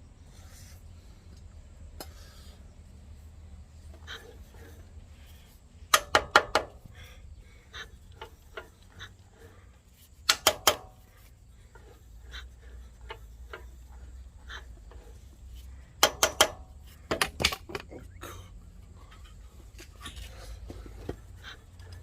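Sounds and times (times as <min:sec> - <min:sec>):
metal tools tapping engine parts: 0:05.9 - 0:06.8, 0:10.2 - 0:11.1, 0:15.9 - 0:18.0.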